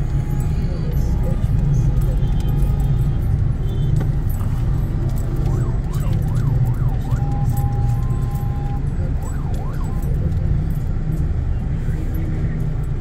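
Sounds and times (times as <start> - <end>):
traffic rumble: 0.0 - 13.0
siren-style warbling car horn: 5.5 - 8.8.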